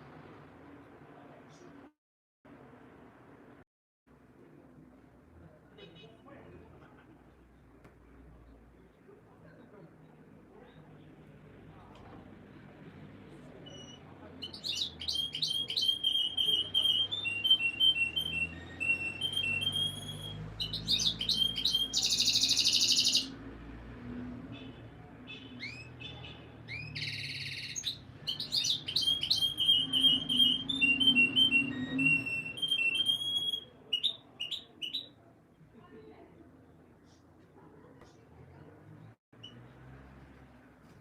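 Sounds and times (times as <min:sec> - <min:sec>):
canary singing: 0:13.6 - 0:23.5, 0:24.4 - 0:35.2.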